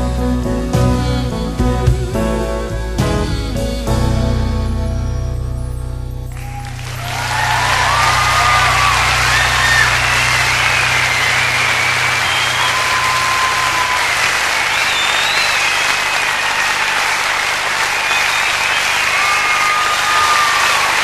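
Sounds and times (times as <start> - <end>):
whistles: 6.3 - 17.1, 17.8 - 21.0
audience applauding and cheering: 6.3 - 21.0.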